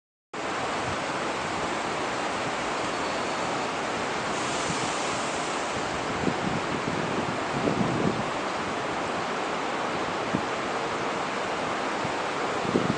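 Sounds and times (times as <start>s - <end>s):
wind blowing: 0.4s - 12.9s
wind buffeting microphone: 3.8s - 11.0s, 11.7s - 12.9s.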